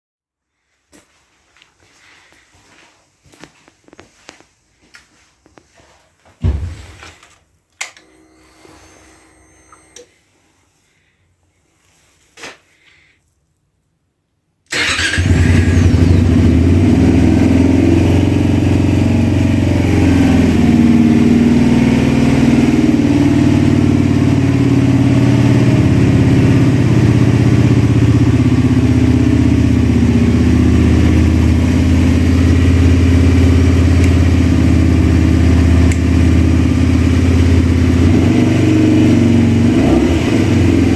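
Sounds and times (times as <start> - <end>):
motorcycle engine starting and idling: 14.7 - 40.9.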